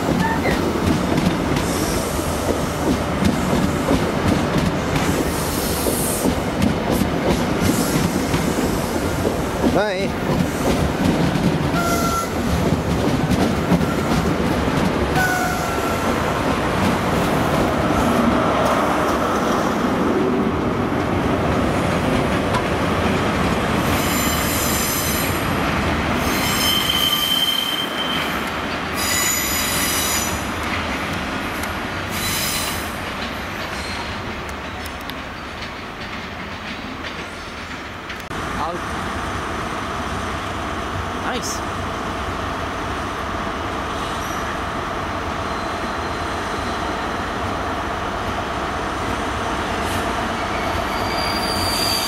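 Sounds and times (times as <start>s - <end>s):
train rolling and engine noise: 0.0s - 52.0s
high-pitched wheel squeal: 26.2s - 28.4s, 50.8s - 52.0s.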